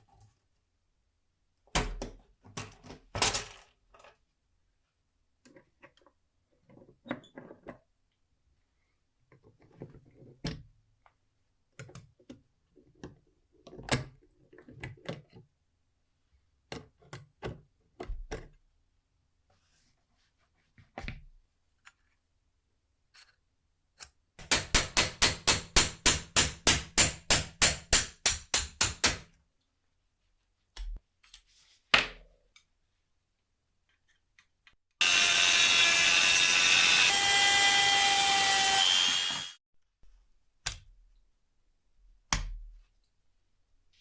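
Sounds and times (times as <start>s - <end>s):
motorised tool running: 35.0s - 39.6s.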